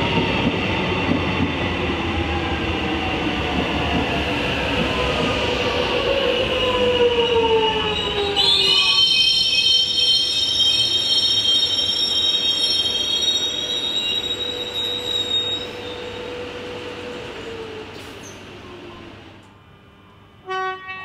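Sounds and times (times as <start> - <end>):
electric train on rails: 0.0 - 21.0
wheel squeal: 8.1 - 16.1.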